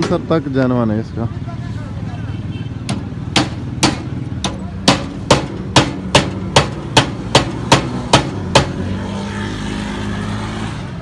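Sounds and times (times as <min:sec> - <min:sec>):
sharp knocks: 0:02.8 - 0:08.9.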